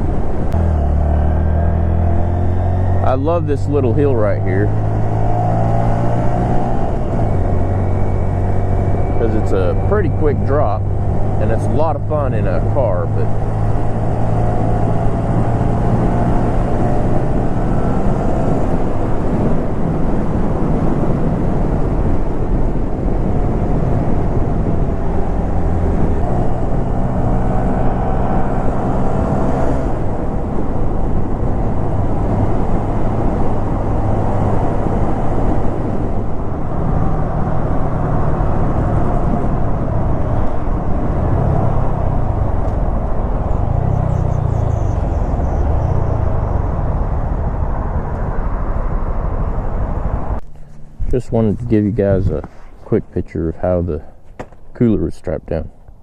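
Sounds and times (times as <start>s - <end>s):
wind rush on microphone: 1.4s - 53.3s.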